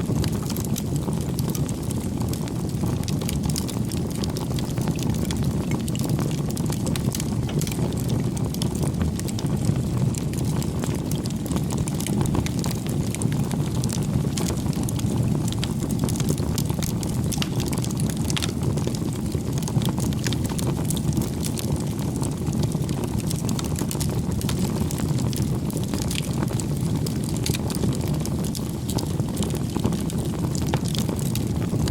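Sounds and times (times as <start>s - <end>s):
wood fire crackling and popping: 0.0s - 31.9s
low rushing fire noise: 0.1s - 20.6s.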